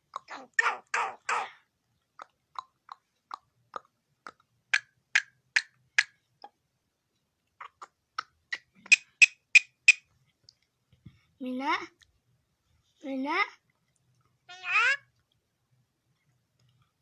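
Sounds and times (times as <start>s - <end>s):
myna bird clicking calls: 7.6s - 10.1s.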